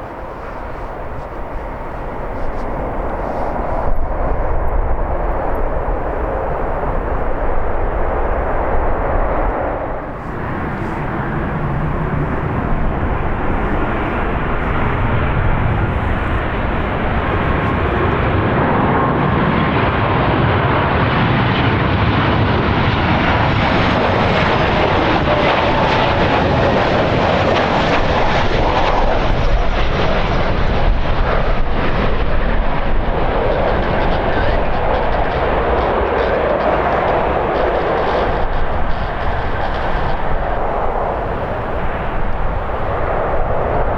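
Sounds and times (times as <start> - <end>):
jet engines roaring: 0.0 - 43.9
strong wind buffeting microphone: 0.0 - 43.9.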